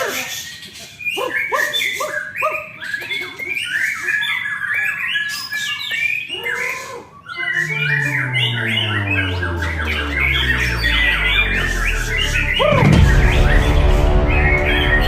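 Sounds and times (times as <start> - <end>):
bird singing whistled song: 0.0 - 7.7.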